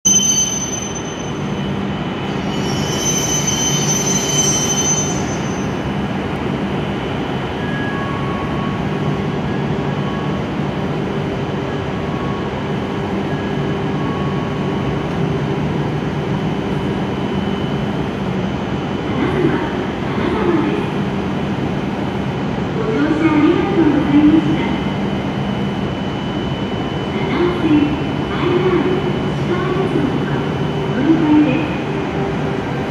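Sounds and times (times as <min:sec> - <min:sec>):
high squeal of train brakes: 0:00.1 - 0:06.0, 0:07.5 - 0:10.4
train rumble and hum: 0:00.2 - 0:32.9.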